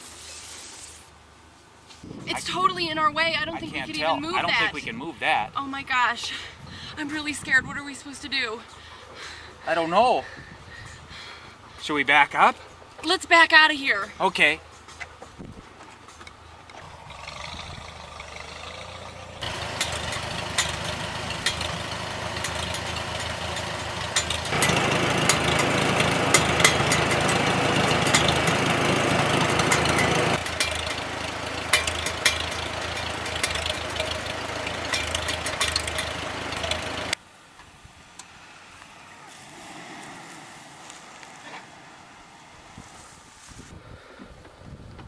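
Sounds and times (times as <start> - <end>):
vehicle engine running: 2.2 - 5.4, 16.4 - 37.2
clicks and rattles: 19.4 - 37.2.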